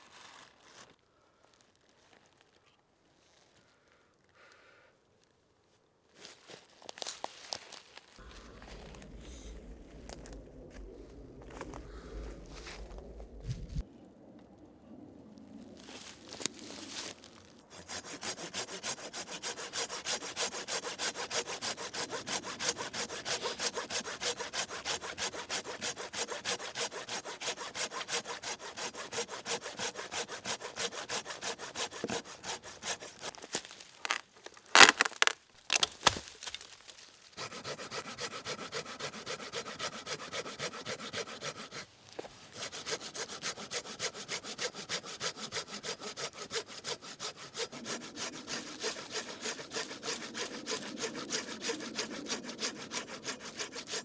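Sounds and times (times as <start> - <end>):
hand saw cutting wood: 17.7 - 36.8, 37.4 - 54.0.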